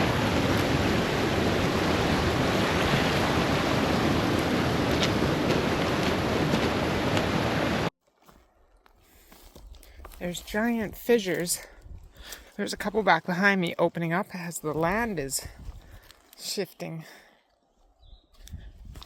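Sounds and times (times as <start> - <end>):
waterfall roaring: 0.0 - 7.9.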